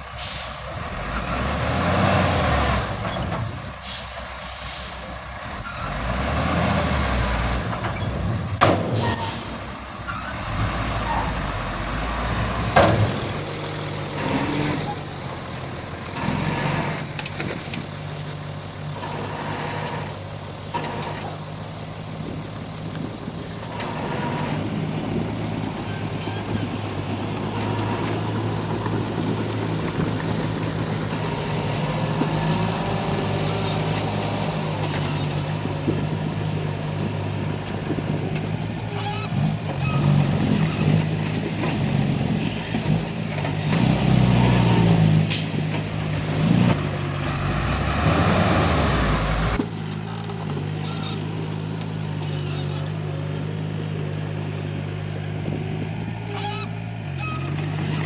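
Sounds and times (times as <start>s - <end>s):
bulldozer diesel engine running: 0.0s - 58.0s
scraping and working noise: 12.4s - 58.0s.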